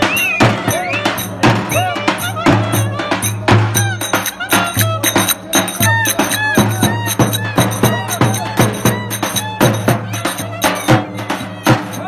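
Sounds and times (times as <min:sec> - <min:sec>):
ornamented folk melody: 0:00.0 - 0:12.0
steady drum beat: 0:00.0 - 0:12.0.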